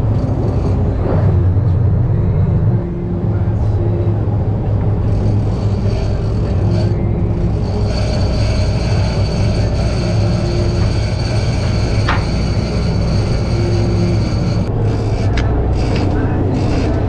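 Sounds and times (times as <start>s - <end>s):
boat engine humming: 0.0s - 17.0s
thin high whine: 4.7s - 17.0s
rising squeak: 5.1s - 17.0s.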